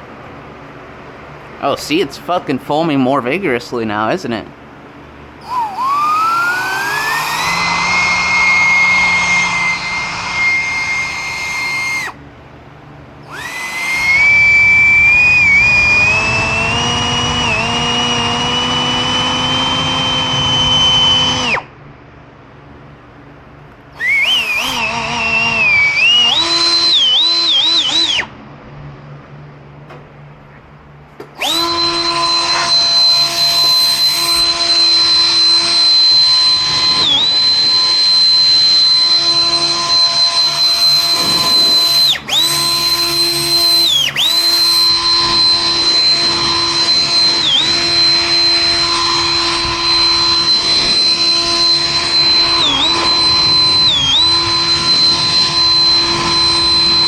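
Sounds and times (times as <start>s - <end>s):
power tool motor whining: 5.4s - 12.2s, 13.2s - 21.7s, 24.0s - 28.3s, 31.4s - 57.0s.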